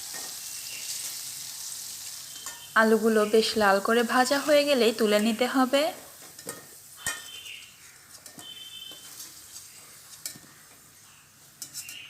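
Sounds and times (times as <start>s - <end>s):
potatoes sizzling in oil: 0.0s - 12.0s
spatula scraping pan: 6.2s - 10.8s, 11.6s - 12.0s.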